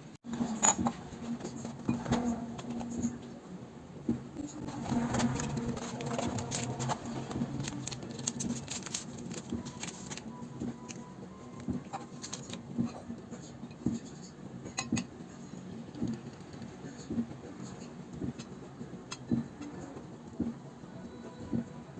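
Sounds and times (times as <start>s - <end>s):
dishes and utensils clinking: 0.3s - 3.1s, 14.7s - 15.1s.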